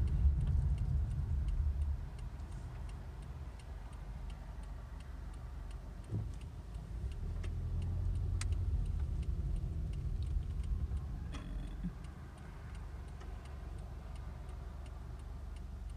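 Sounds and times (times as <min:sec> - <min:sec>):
wind buffeting microphone: 0:00.0 - 0:03.2
faint even ticking: 0:00.0 - 0:15.9.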